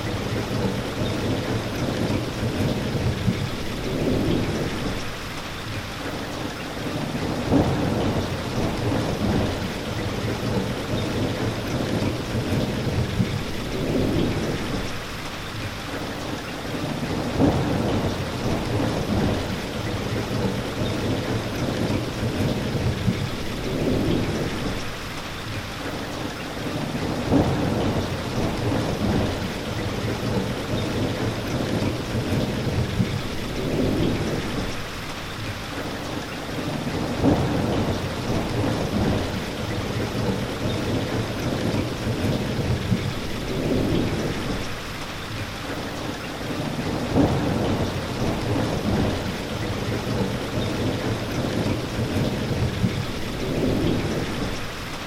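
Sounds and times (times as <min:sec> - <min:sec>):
steady rain: 0:00.0 - 0:55.0
thunder rumbling: 0:07.2 - 0:15.1, 0:17.0 - 0:25.0, 0:27.0 - 0:34.9, 0:36.6 - 0:44.9, 0:46.6 - 0:55.0.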